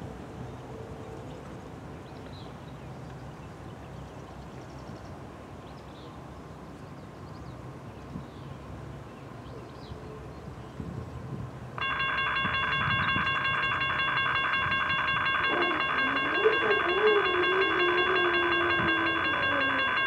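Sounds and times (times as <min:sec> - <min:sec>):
distant diesel locomotives rumbling: 0:08.5 - 0:20.0.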